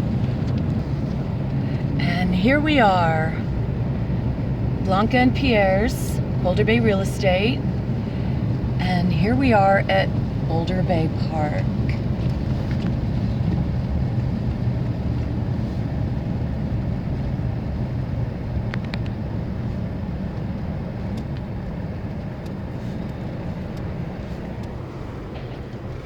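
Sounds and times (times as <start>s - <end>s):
car engine and road noise: 0.0s - 26.0s
faint ticks: 21.1s - 25.8s.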